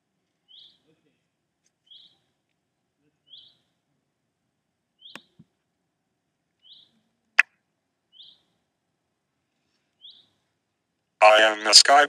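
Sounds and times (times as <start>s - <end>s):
bird chirping: 0.4s - 0.9s, 1.8s - 2.3s, 3.2s - 3.7s, 5.0s - 5.4s, 6.6s - 7.0s, 8.1s - 8.6s, 9.9s - 10.4s.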